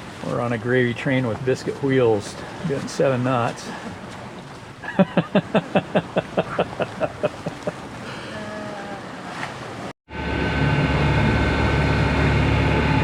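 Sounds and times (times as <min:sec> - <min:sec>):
water noise: 0:00.0 - 0:13.0
wind: 0:00.0 - 0:13.0
person laughing: 0:04.8 - 0:07.8.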